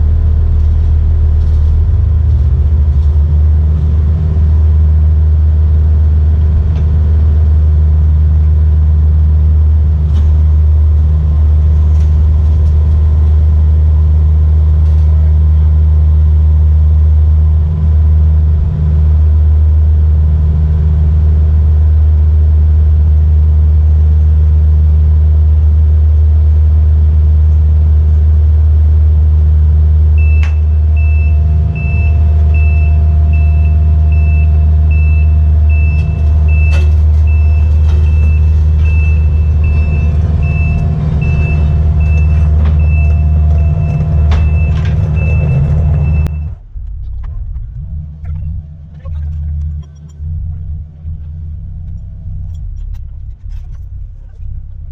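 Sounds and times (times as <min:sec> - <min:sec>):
excavator diesel engine running: 0:00.0 - 0:54.9
backup alarm beeping: 0:30.2 - 0:46.6.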